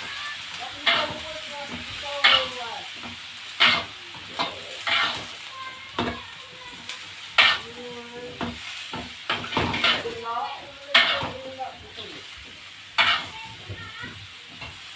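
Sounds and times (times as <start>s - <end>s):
food sizzling in oil: 0.0s - 14.9s
utensil scraping a pan: 0.8s - 2.6s, 3.6s - 5.4s, 7.3s - 10.3s, 10.9s - 12.2s, 13.0s - 13.5s.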